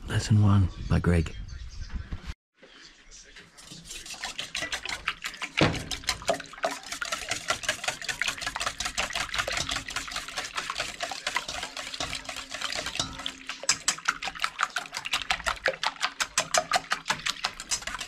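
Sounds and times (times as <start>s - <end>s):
liquid sloshing: 3.5s - 18.0s
utensil clicking against bowl: 4.2s - 18.0s.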